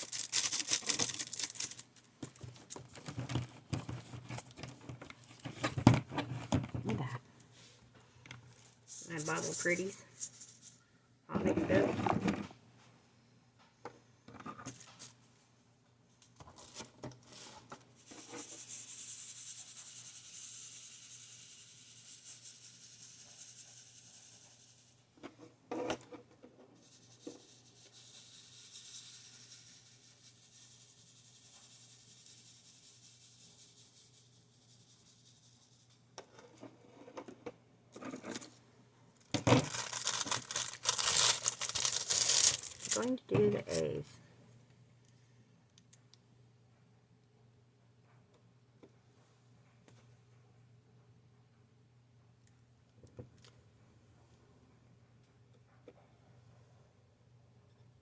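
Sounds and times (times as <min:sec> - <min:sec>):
soft rubbing and scraping: 0:06.2 - 0:10.8.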